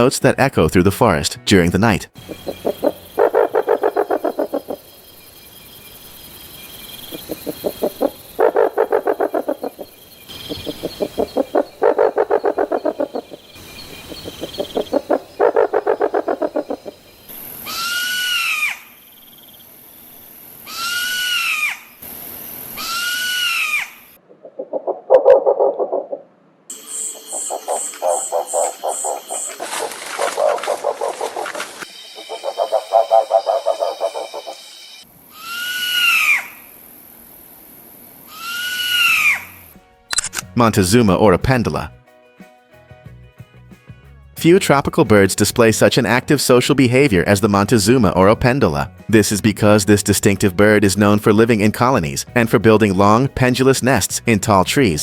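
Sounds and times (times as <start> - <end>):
owl hooting rapidly: 2.2 - 19.5, 20.6 - 36.8, 38.2 - 39.7.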